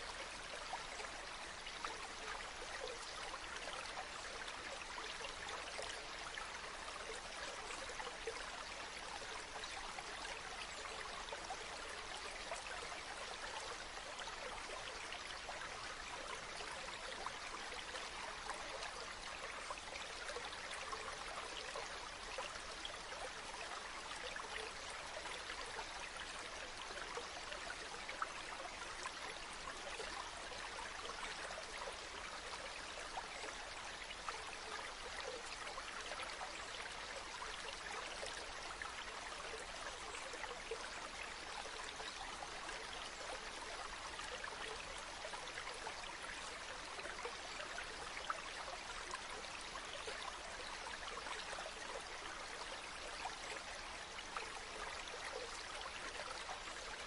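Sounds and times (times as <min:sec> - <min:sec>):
stream babbling over stones: 0:00.0 - 0:57.0.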